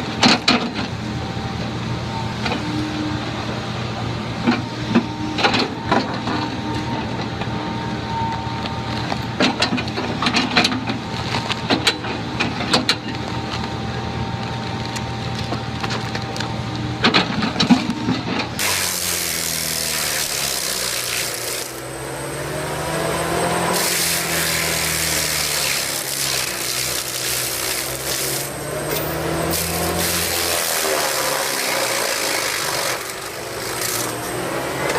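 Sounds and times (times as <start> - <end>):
tree-cutting machine engine: 0.0 - 34.9
coarse sawing noise: 17.7 - 34.9.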